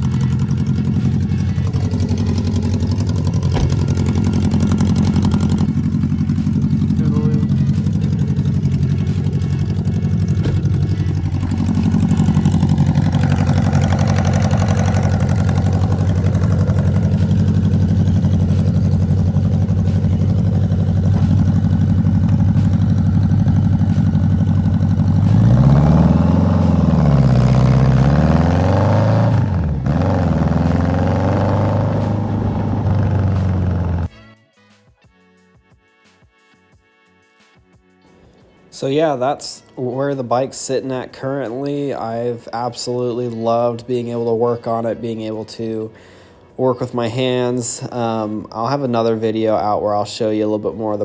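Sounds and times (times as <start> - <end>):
motorcycle engine revving: 0.0 - 34.1.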